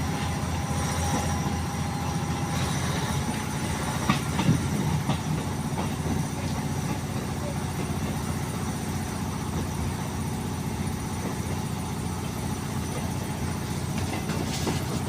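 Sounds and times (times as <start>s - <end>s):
train engine rumbling: 0.0s - 15.0s.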